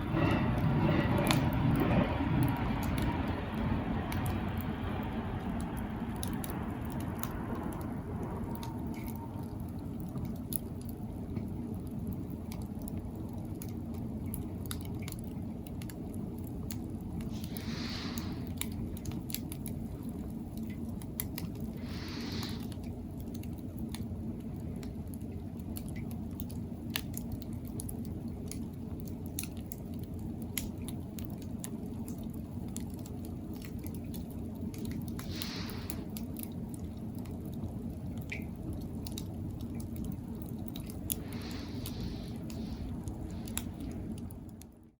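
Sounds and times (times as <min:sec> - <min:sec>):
campfire crackling and popping: 0:00.0 - 0:44.9
low fire rumble: 0:00.0 - 0:44.9
high-pitched hisses: 0:17.4 - 0:18.4, 0:21.8 - 0:22.6.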